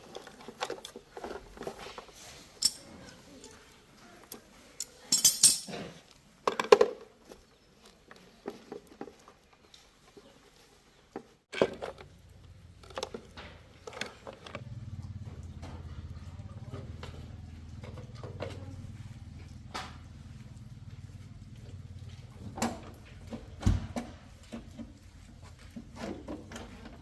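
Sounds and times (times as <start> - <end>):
metal tools clinking: 0.0 - 3.8, 4.7 - 5.9.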